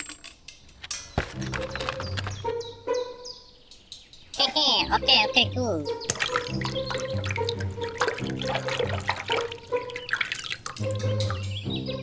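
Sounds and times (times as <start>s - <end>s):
background music with bass line: 4.8s - 12.0s
dripping or splashing ticks: 5.8s - 12.0s.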